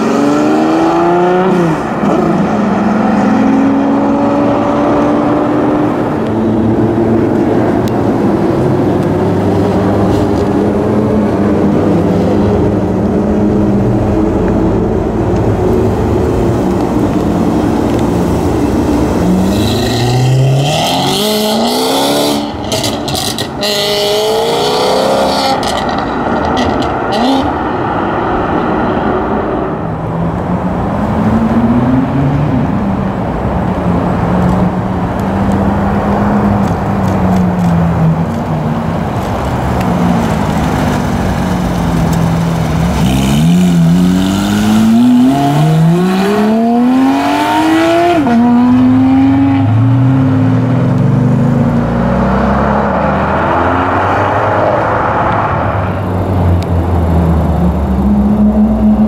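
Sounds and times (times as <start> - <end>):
car engine revving hard: 19.2 - 27.5, 42.8 - 49.8.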